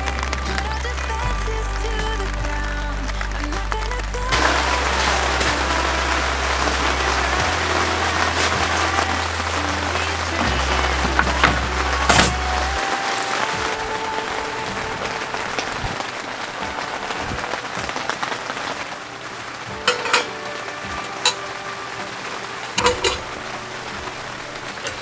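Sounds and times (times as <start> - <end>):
rain patter: 0.0 - 25.0
metal cookware clinking: 19.8 - 20.4, 22.8 - 23.3.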